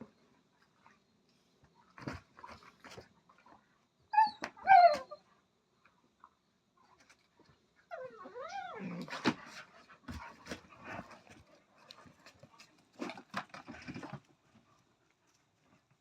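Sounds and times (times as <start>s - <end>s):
puppy whining: 4.1s - 5.2s, 7.9s - 9.1s.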